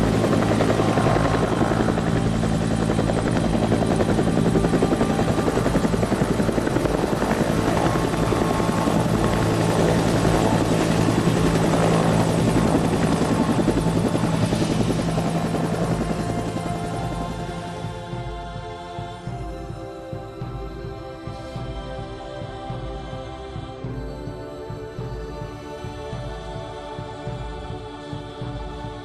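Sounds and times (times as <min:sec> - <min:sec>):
aircraft engine drone: 0:00.0 - 0:29.0.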